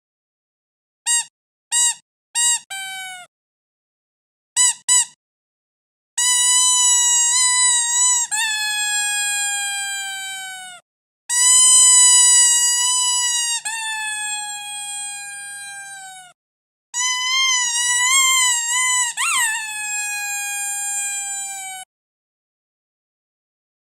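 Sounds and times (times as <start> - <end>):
rubber squeaky dog toy squeaking: 1.1 - 3.3, 4.6 - 5.2, 6.2 - 16.3, 17.0 - 21.9.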